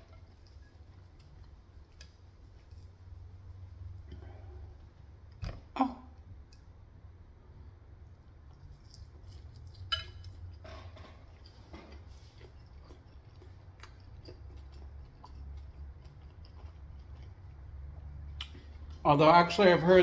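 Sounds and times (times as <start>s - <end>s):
low steady hum: 0.0s - 20.0s
person chewing food: 8.3s - 19.1s.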